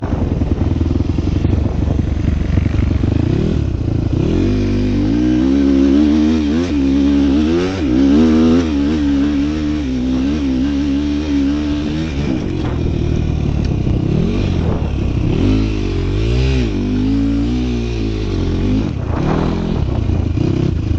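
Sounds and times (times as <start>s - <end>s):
small vehicle engine revving: 0.8s - 20.9s.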